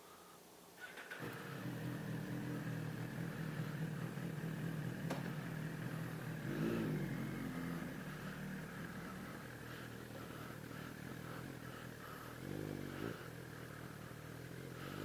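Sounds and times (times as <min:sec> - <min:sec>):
motorcycle engine idling: 0:00.8 - 0:15.0
engine throttle blip: 0:00.9 - 0:09.6.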